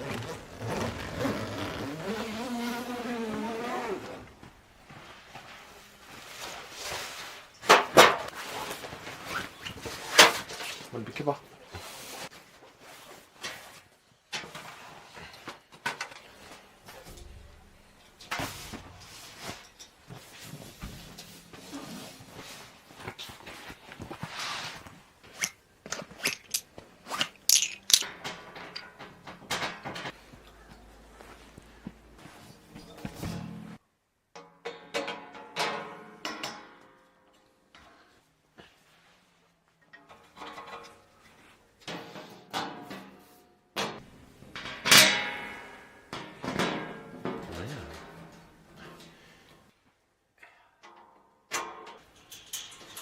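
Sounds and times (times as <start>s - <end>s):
camping gear rustling and clicking: 0.0s - 33.5s
objects knocking being set down: 25.9s - 28.8s.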